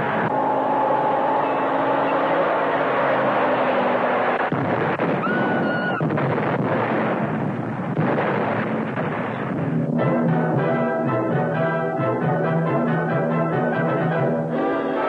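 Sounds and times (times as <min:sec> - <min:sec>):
car engine running: 0:00.0 - 0:05.2
blast and rock avalanche rumble: 0:04.4 - 0:10.9.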